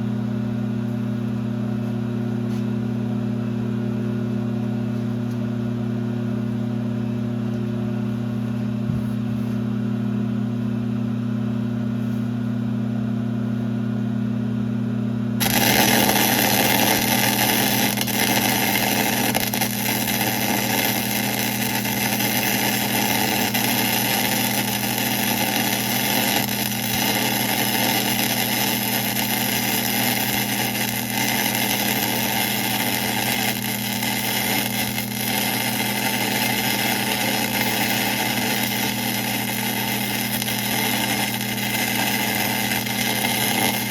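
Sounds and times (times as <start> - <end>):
lathe humming: 15.4 - 43.9.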